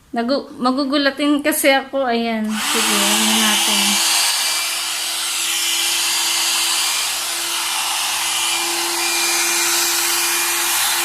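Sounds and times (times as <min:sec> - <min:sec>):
hair dryer blowing air: 0:02.4 - 0:11.0
motor hum: 0:02.5 - 0:11.0.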